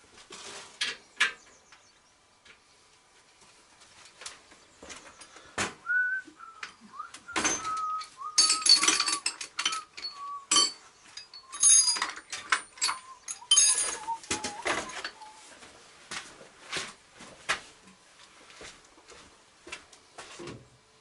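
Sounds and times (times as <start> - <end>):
person whistling a tune: 5.8 - 10.7, 12.9 - 15.5
metal tools clinking: 7.3 - 15.3.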